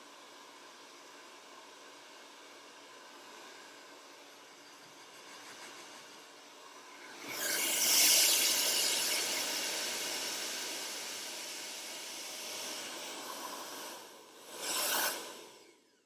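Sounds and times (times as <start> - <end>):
hair dryer blowing: 7.2 - 15.6.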